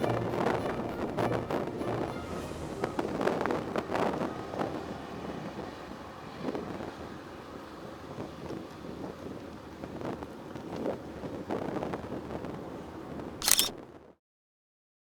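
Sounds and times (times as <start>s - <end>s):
background music with a beat: 0.0s - 3.2s
wind rushing over microphone: 0.0s - 14.0s.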